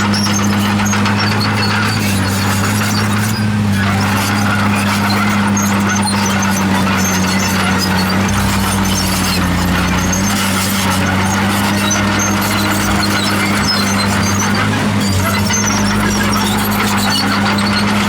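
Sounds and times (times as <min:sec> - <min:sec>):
bulldozer diesel engine running: 0:00.0 - 0:18.0
steel tracks squealing: 0:00.0 - 0:18.0.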